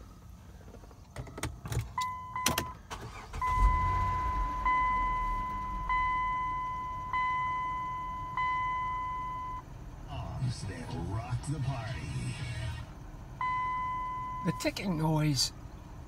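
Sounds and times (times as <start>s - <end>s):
car engine starting and idling: 0.0s - 16.0s
two-tone warning chime: 3.4s - 9.6s.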